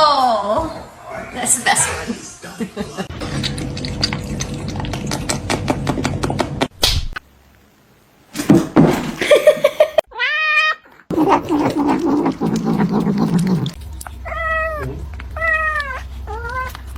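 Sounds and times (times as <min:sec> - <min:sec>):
cats meowing: 0:10.1 - 0:16.9.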